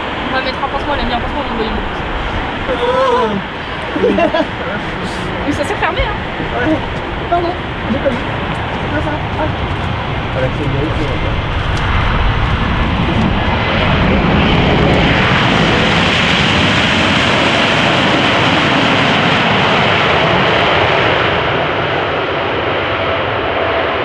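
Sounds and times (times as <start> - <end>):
airliner passing: 0.0 - 24.0.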